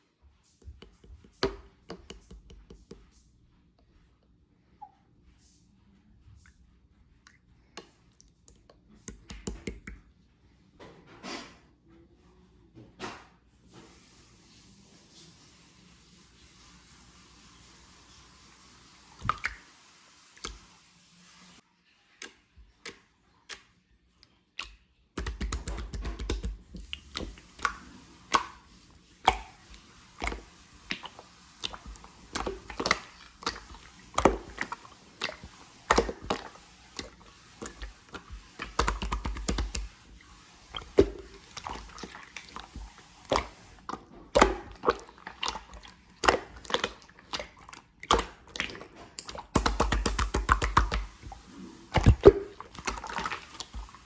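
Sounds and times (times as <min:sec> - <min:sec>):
slime clicking and popping: 0:24.6 - 0:27.7, 0:48.1 - 0:51.0.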